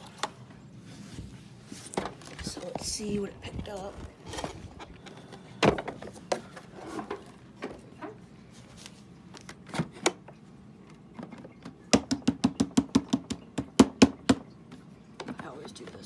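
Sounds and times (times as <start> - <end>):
plastic clicks and knocks: 9.4 - 14.5.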